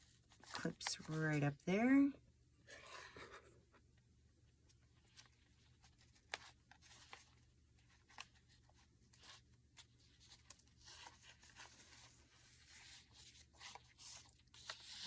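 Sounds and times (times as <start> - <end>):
paper pages rustling: 0.0 - 1.4, 4.9 - 15.0.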